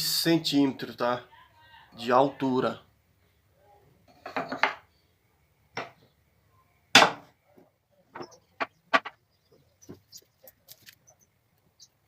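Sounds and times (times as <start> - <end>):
pallet wood knocking together: 7.0 - 7.3, 8.1 - 9.2.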